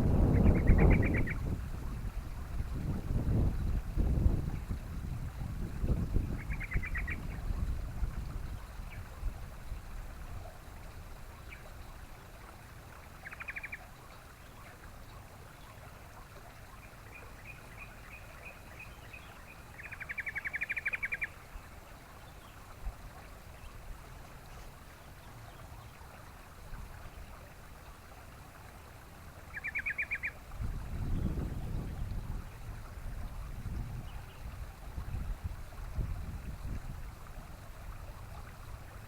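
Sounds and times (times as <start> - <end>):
bird chattering: 0.4 - 1.4.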